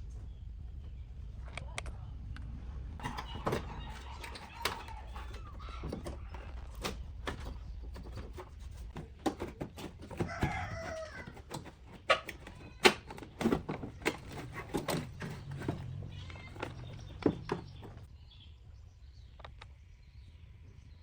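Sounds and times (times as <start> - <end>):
chicken calling: 3.0 - 6.8, 10.1 - 13.4
light clicks and knocks: 3.0 - 18.1.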